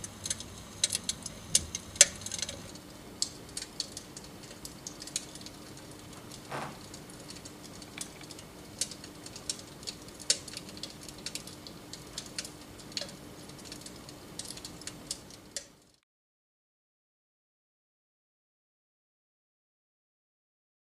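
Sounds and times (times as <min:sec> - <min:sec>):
steady low hum: 0:00.0 - 0:10.0
electric fireplace crackling clicks: 0:00.0 - 0:16.0.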